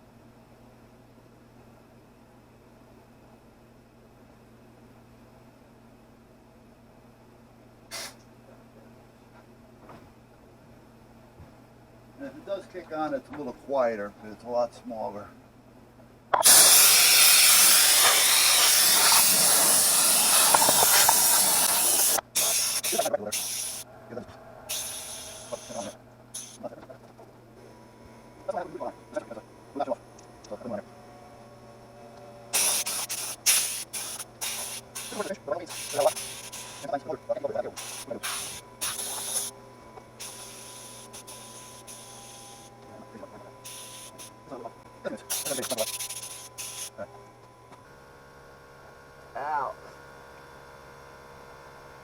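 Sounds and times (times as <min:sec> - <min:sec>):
compressed air hissing from nozzle: 0:07.9 - 0:08.2, 0:16.4 - 0:23.9, 0:24.7 - 0:26.6, 0:32.5 - 0:37.0, 0:37.7 - 0:39.5, 0:40.2 - 0:42.7, 0:43.6 - 0:44.4, 0:45.3 - 0:46.9.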